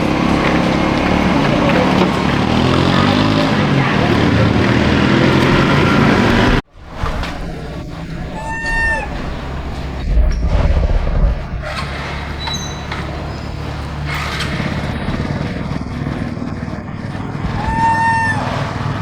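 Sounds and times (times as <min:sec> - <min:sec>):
low rumble of traffic: 0:00.0 - 0:19.0
high-pitched monkey coo call: 0:07.8 - 0:10.1, 0:17.4 - 0:19.0.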